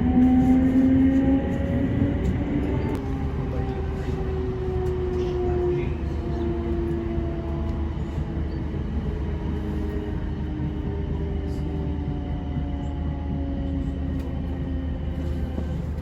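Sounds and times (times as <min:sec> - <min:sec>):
electric train whine: 0:00.0 - 0:16.0
train wheels rumbling on track: 0:00.0 - 0:16.0.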